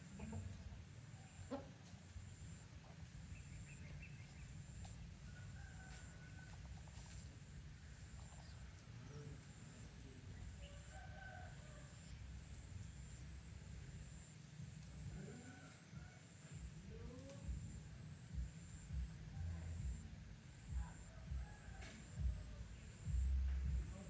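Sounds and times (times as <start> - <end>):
steady low rumble: 0.0 - 10.9, 11.5 - 21.5, 22.2 - 24.0
chicken clucking: 0.1 - 0.8, 1.4 - 2.0.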